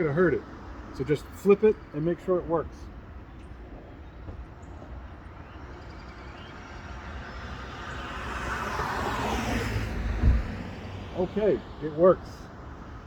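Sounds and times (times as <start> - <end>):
passing vehicle road noise: 2.7 - 13.0.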